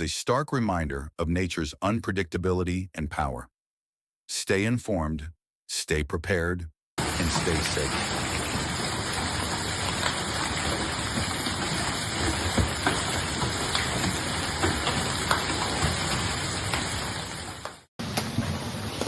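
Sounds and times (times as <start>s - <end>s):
hailstones knocking hard surfaces: 7.0s - 19.0s
heavy rain and hail: 7.0s - 19.0s.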